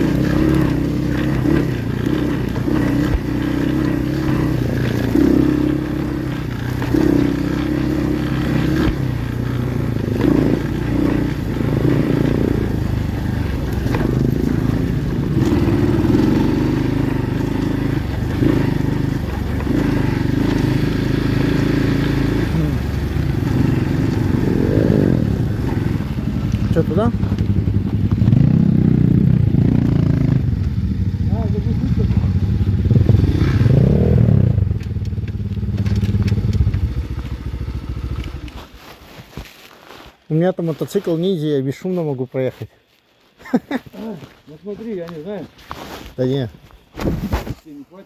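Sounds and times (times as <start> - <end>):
pit bike engine revving: 0.0 - 38.7.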